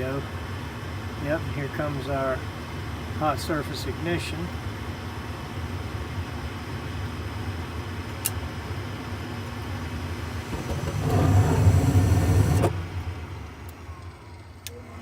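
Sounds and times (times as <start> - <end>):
furnace burners rumbling: 0.0 - 15.0
furnace draft inducer humming: 6.8 - 15.0.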